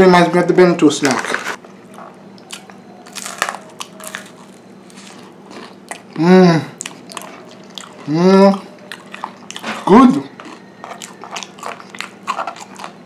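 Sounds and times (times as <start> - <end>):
rice cracker crunching: 1.0 - 6.1, 8.9 - 13.0
person vocal sound: 6.2 - 6.8.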